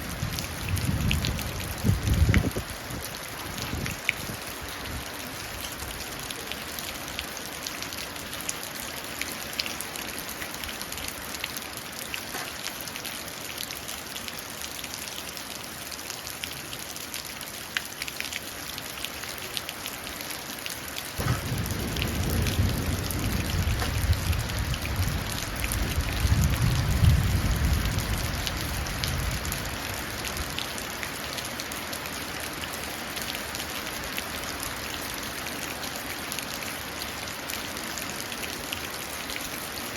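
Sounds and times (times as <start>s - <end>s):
rain dripping into puddle: 0.0s - 39.9s
low thunder roll: 21.2s - 29.7s.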